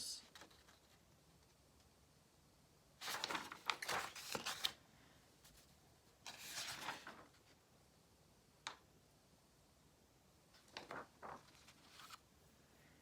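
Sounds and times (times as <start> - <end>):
paper rustling and crinkling: 0.3 - 1.6, 3.0 - 4.8, 5.4 - 7.6, 10.6 - 12.3.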